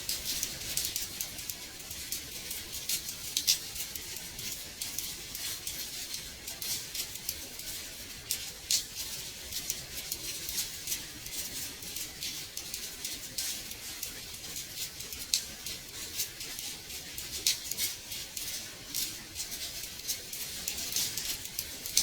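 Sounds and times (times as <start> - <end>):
rain on a window pane: 0.0 - 22.0.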